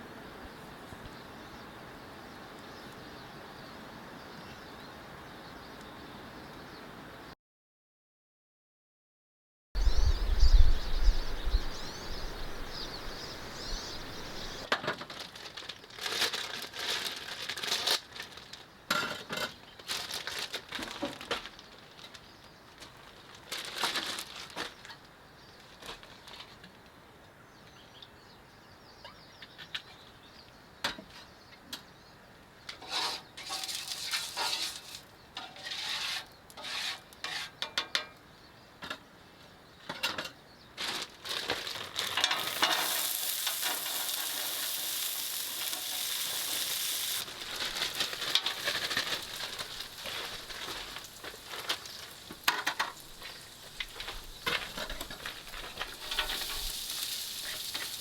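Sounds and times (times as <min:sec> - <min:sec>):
small birds chirping: 0:09.8 - 0:14.7, 0:27.4 - 0:35.4, 0:42.9 - 0:58.0
rustling and knocking: 0:47.2 - 0:56.8.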